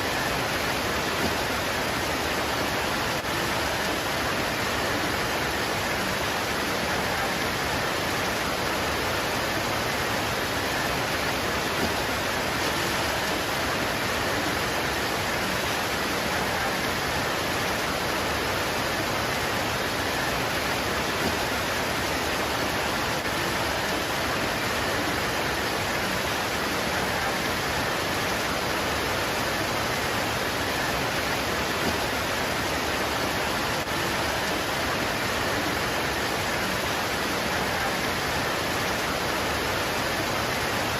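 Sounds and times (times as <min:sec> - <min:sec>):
heavy rain on leaves: 0:00.0 - 0:40.9.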